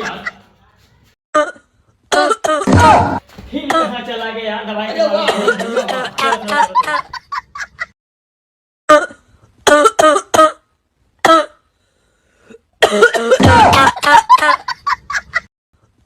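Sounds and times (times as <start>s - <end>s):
person coughing: 5.0s - 6.6s, 12.8s - 14.0s.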